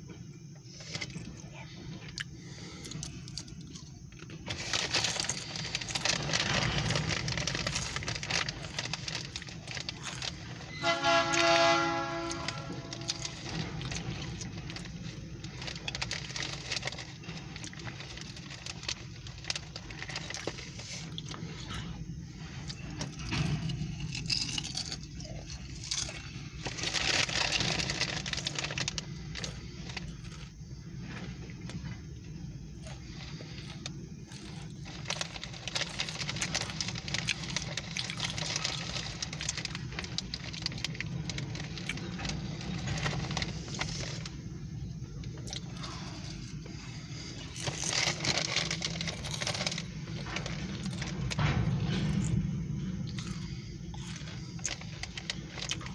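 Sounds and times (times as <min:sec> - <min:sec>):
wheels clicking and rattling on rails: 0:00.1 - 0:46.9, 0:47.5 - 0:55.9
freight train rumbling past: 0:05.1 - 0:24.2, 0:35.3 - 0:55.3.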